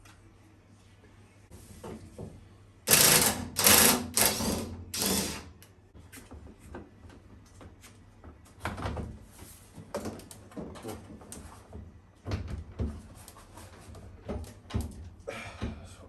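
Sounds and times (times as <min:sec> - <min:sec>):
power tool rattling: 0:02.9 - 0:05.5.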